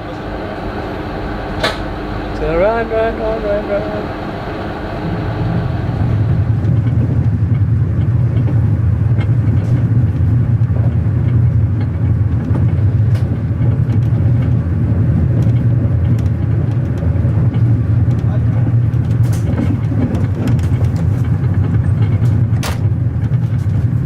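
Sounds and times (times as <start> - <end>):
passenger train rumbling: 0.0 - 24.0
faint clicks and knocks: 6.6 - 24.0.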